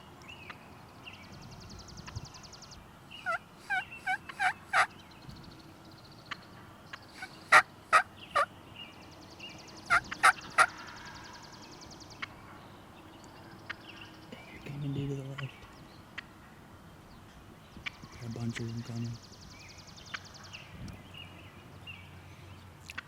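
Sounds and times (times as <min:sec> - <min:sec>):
wild turkey yelping: 0:03.2 - 0:04.9, 0:07.2 - 0:08.5, 0:09.9 - 0:10.9.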